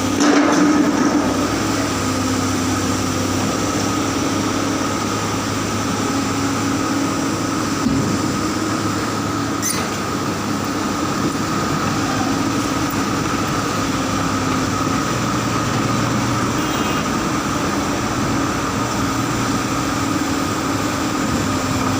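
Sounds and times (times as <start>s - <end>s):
dump truck engine drone: 0.0s - 21.9s.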